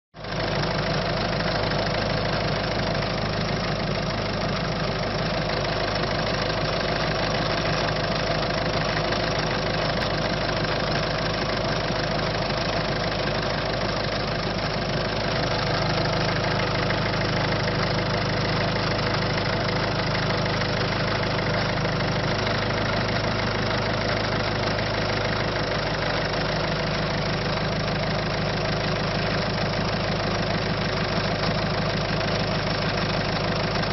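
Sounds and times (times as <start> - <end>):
diesel engine idling: 0.2 - 33.9.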